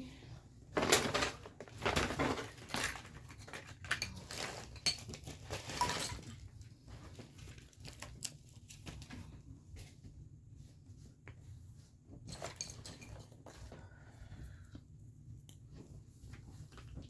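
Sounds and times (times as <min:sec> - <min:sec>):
household items clinking and knocking: 0:00.7 - 0:08.3, 0:12.2 - 0:13.9.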